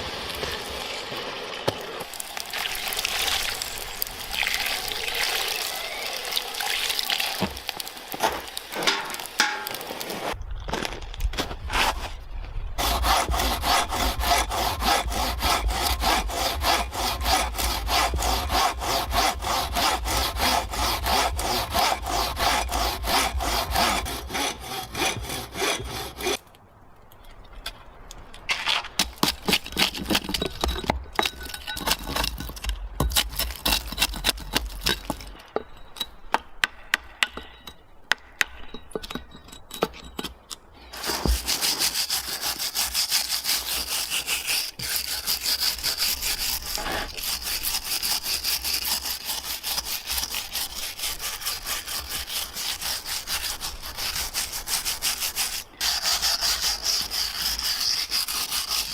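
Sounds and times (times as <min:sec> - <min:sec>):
hand saw cutting wood: 0:12.8 - 0:26.4, 0:41.0 - 0:58.9.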